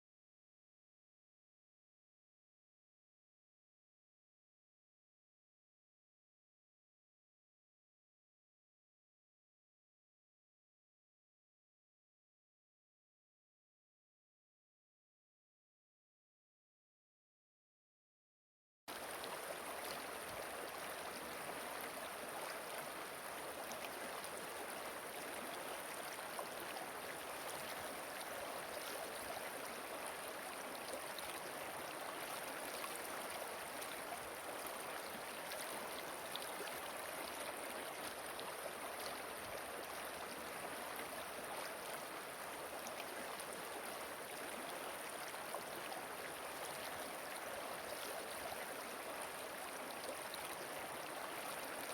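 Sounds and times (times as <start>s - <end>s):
flowing water rushing: 18.9s - 51.9s.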